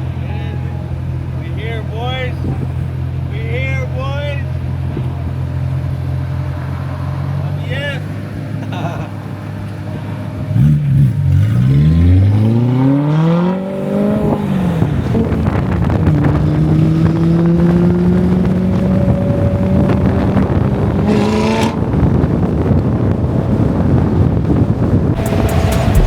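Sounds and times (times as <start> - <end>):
car engine accelerating: 0.0 - 26.0
steady rushing noise: 24.7 - 26.0.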